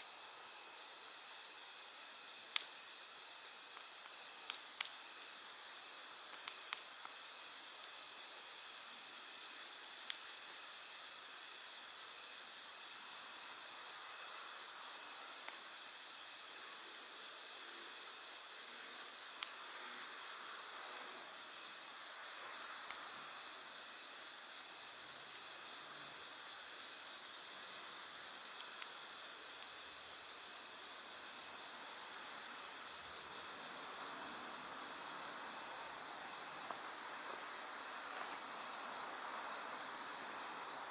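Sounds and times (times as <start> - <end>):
crickets trilling: 0.0 - 40.9
wood fire crackling: 2.4 - 8.0, 9.8 - 10.9, 27.5 - 34.1, 36.1 - 38.8.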